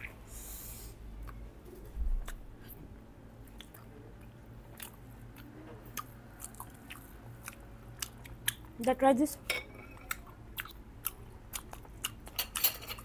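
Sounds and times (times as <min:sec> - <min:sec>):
chewing mouth sounds: 0:03.4 - 0:08.8, 0:10.0 - 0:12.4.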